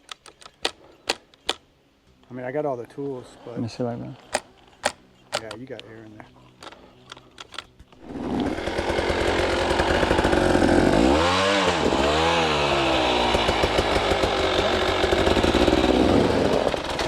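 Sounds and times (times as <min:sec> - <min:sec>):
dirt bike engine running: 0:08.0 - 0:17.0.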